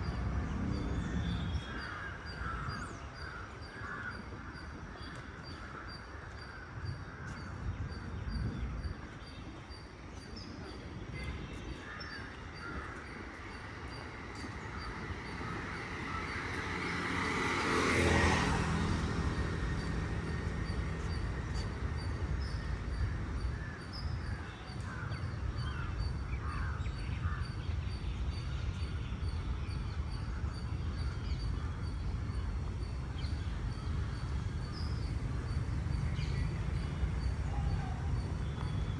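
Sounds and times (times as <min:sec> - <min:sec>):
vehicle passing by: 0:00.0 - 0:01.8, 0:13.6 - 0:23.1
low traffic rumble: 0:00.0 - 0:38.9.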